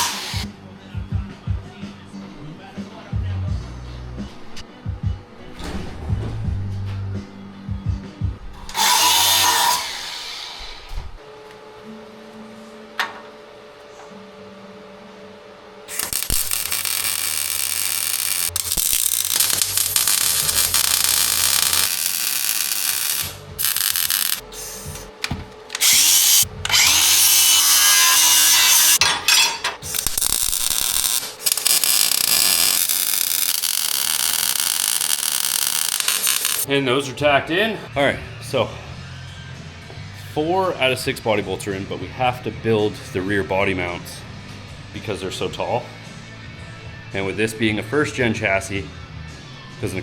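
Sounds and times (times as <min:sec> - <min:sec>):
power tool running: 0:00.0 - 0:00.5, 0:08.6 - 0:11.2, 0:15.9 - 0:36.7.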